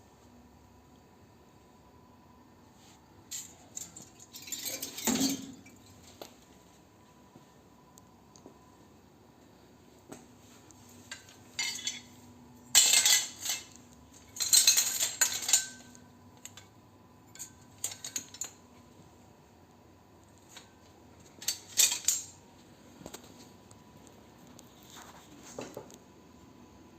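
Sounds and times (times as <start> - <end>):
small metal pieces clinking: 3.3 - 5.8, 12.7 - 16.7, 17.3 - 18.6, 21.4 - 22.4.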